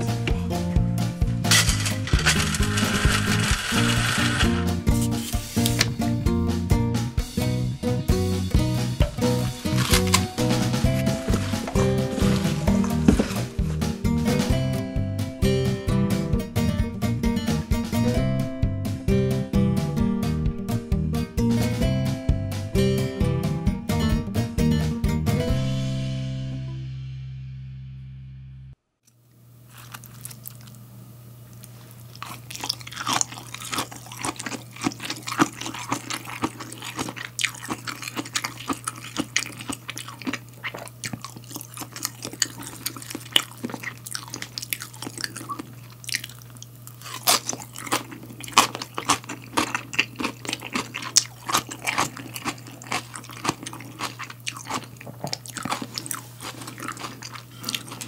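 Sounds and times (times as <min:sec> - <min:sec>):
crunching and chewing salad: 0:01.3 - 0:05.9, 0:09.0 - 0:13.8, 0:29.6 - 0:58.0.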